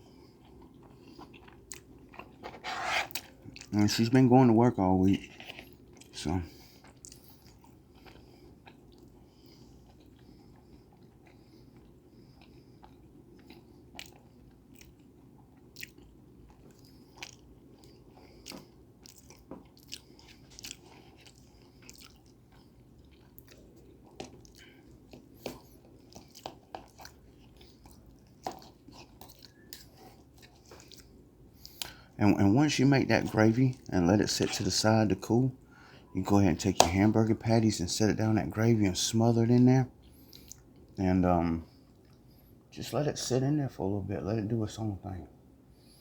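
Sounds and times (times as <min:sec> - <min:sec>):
person chewing food: 0:00.0 - 0:04.2, 0:05.0 - 0:32.2, 0:40.0 - 0:41.0, 0:41.7 - 0:42.5
faint steady hum: 0:00.0 - 0:46.0.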